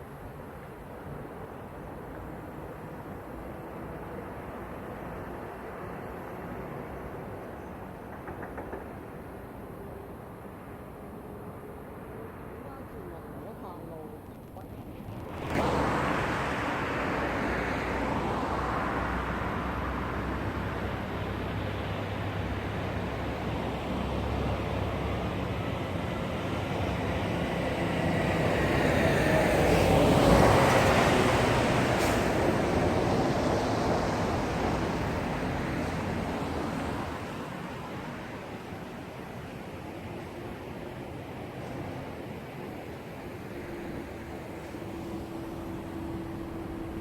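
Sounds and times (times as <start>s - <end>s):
road traffic: 0.0s - 47.0s
vehicle passing close: 14.8s - 22.1s.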